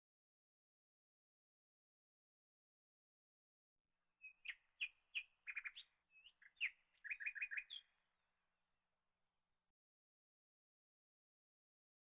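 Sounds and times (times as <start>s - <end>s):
bird chirping: 4.2s - 8.0s.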